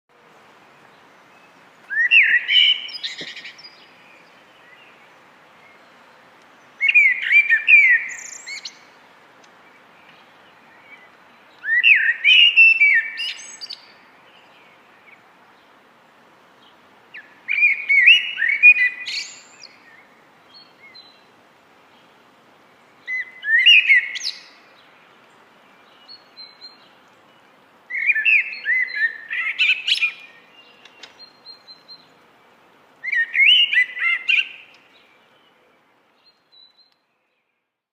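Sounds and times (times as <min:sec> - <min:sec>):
blackbird singing: 0:01.4 - 0:05.0, 0:06.8 - 0:08.9, 0:10.0 - 0:15.2, 0:17.2 - 0:21.3, 0:23.0 - 0:24.9, 0:25.7 - 0:32.2, 0:33.0 - 0:37.5.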